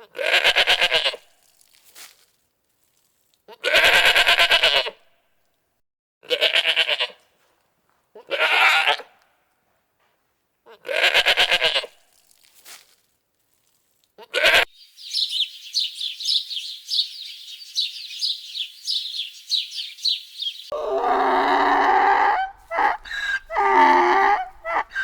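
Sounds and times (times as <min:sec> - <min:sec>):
goat bleating: 0:00.1 - 0:01.2, 0:03.5 - 0:04.9, 0:06.2 - 0:07.2, 0:08.2 - 0:09.1, 0:10.7 - 0:11.9, 0:14.2 - 0:14.7, 0:20.7 - 0:25.0.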